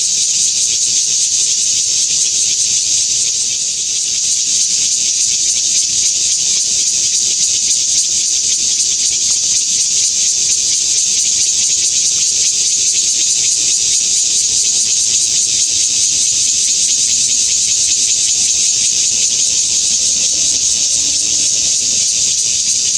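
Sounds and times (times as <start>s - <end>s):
cicada buzzing: 0.0s - 22.9s.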